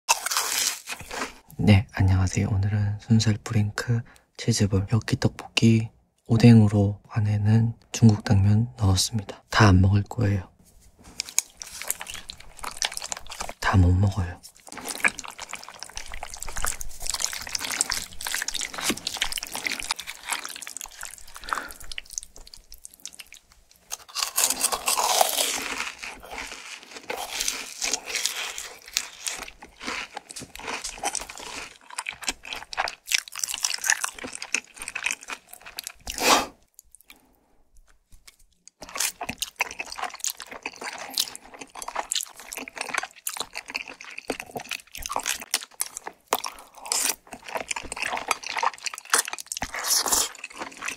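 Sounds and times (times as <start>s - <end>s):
wet sticky chewing: 11.1s - 50.9s
slurping noodles: 14.6s - 22.2s, 36.1s - 36.6s, 46.6s - 50.9s.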